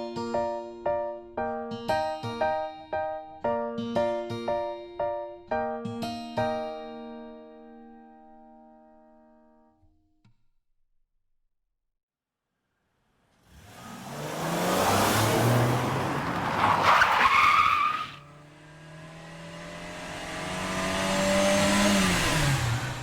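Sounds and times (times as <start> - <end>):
car engine revving: 13.4 - 23.0
tyre squeal: 15.6 - 18.2.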